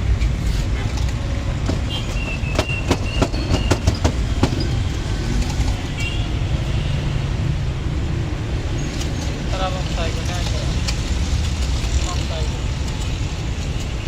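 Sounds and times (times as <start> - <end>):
vehicle rumble: 0.0 - 14.0
sharp clicks and rattles: 0.9 - 5.9
high squeaks: 1.7 - 5.0.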